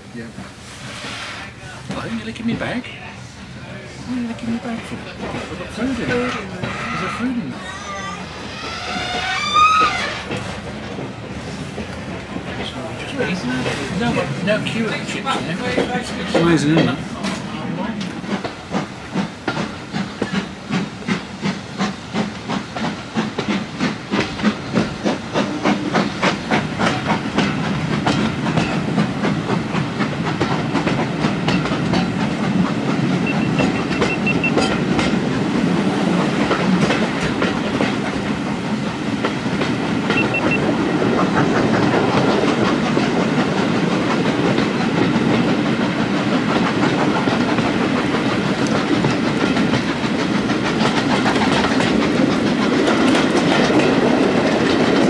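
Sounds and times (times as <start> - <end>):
wheels clattering on track: 4.1 - 7.6, 8.5 - 55.0
steam locomotive beats: 8.2 - 55.0.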